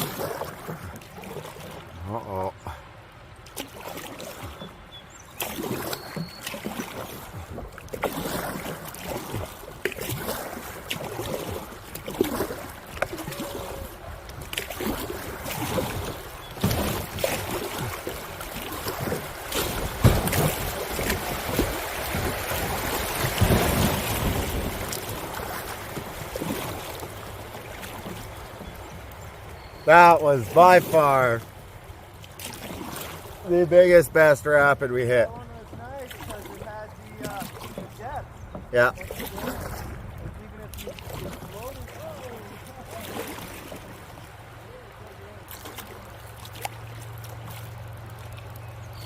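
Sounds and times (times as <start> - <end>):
whitewater rushing and splashing: 0.0 - 49.0
knocks against kayak: 19.0 - 22.3.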